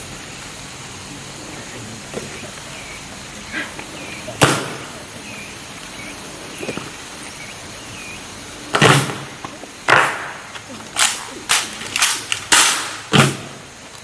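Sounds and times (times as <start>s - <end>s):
steady hiss: 0.0s - 14.0s
rifle butts striking ground: 8.7s - 13.6s.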